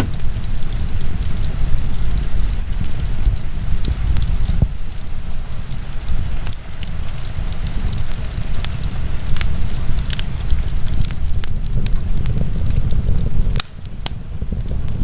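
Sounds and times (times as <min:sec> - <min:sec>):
fire low rumble: 0:00.0 - 0:15.0
wood fire crackling and popping: 0:00.0 - 0:15.0.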